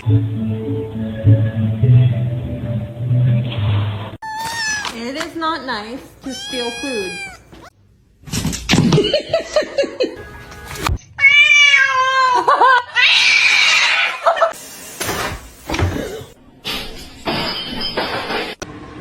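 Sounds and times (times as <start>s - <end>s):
background music: 0.0s - 3.6s
cat meowing: 4.2s - 5.0s, 6.3s - 7.7s, 11.2s - 12.2s.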